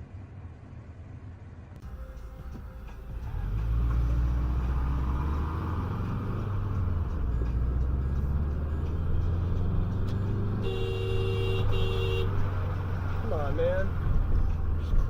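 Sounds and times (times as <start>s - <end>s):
car engine and road rumble: 0.0s - 15.0s
car horn: 10.5s - 12.5s.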